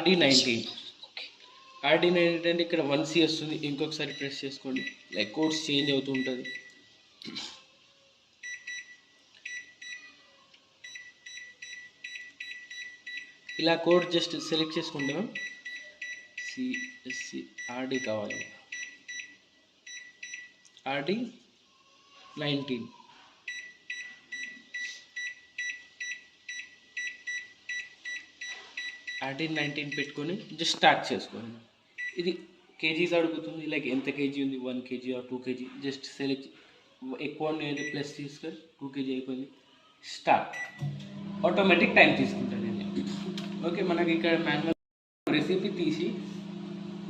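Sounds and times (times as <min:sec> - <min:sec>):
microwave control panel beeping: 0:04.0 - 0:06.8, 0:10.8 - 0:14.1, 0:15.0 - 0:20.6, 0:37.7 - 0:38.0, 0:40.5 - 0:43.9.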